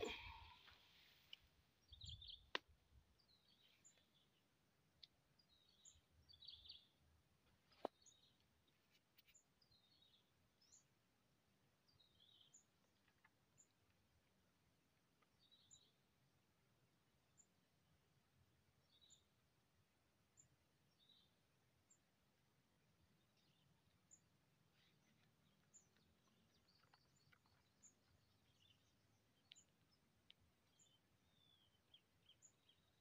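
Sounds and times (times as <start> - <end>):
faint bird chirps: 1.8 - 2.6, 23.0 - 33.0.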